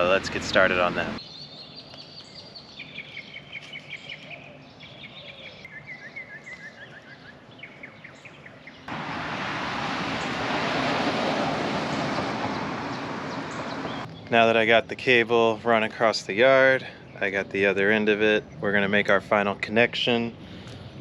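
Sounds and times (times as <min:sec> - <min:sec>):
birds singing: 0:00.0 - 0:08.9, 0:11.9 - 0:19.7.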